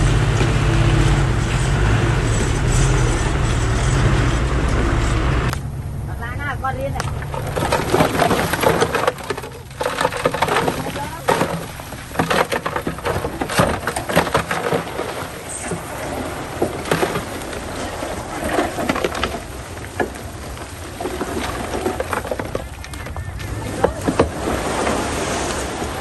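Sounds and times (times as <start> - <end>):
bulldozer engine rumble: 0.0 - 26.0
rock crunching and cracking: 7.0 - 24.4.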